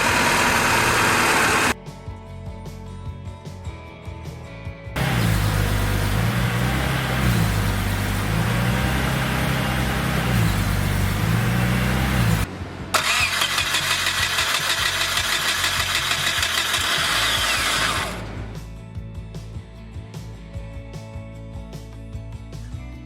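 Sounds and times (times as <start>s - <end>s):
car engine running: 0.0s - 1.8s, 5.0s - 18.8s
fast regular ticking: 13.0s - 18.2s.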